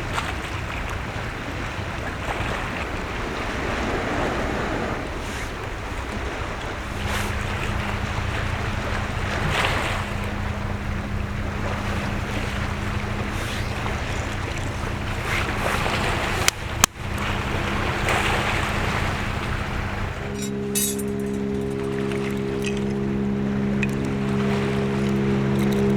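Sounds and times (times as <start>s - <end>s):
faint low hum: 5.6s - 25.9s.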